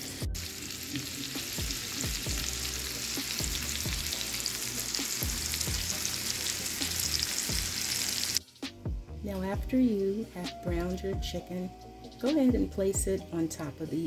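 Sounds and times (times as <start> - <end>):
chicken sizzling in a pan: 0.0 - 8.4.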